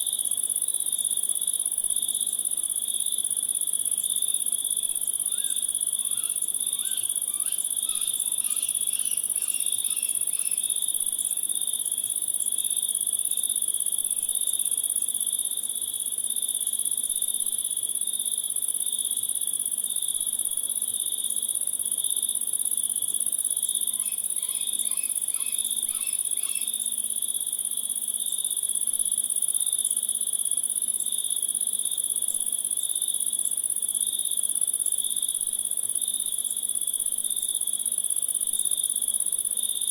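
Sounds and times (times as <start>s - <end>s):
crickets and insects chirring: 3.5s - 13.4s, 22.6s - 31.2s.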